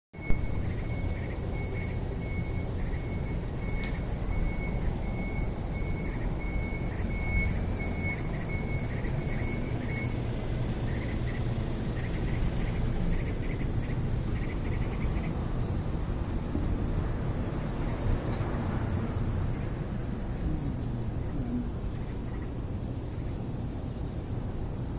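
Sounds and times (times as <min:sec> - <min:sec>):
baby birds peeping: 0:00.2 - 0:18.5
steady low rumble: 0:00.2 - 0:24.9.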